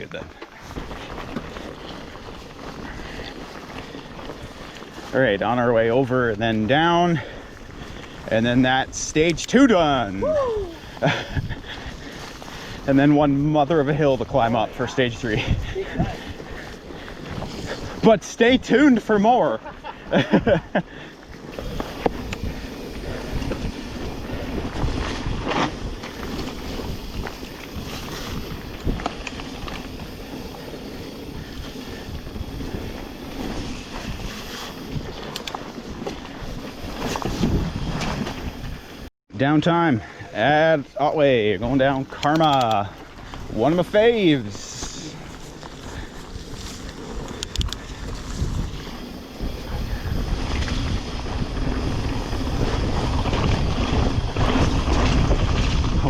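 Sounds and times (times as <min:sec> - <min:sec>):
wind rushing over microphone: 0:00.0 - 0:39.1, 0:40.5 - 0:56.0
mountain bike rumbling on trail: 0:00.0 - 0:56.0
sharp clicks: 0:35.3 - 0:35.6, 0:42.1 - 0:43.0.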